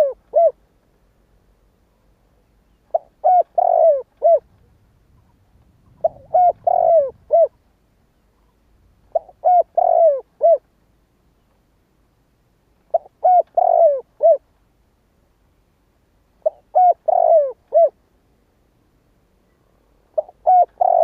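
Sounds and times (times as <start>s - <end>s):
dove cooing: 0.0s - 0.6s, 2.8s - 7.6s, 8.4s - 10.6s, 12.9s - 14.4s, 16.4s - 18.0s, 20.2s - 21.0s.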